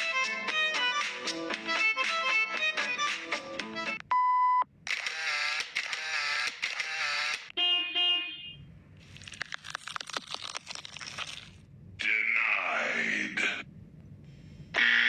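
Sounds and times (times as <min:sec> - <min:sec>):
censor beep: 0:04.1 - 0:04.7.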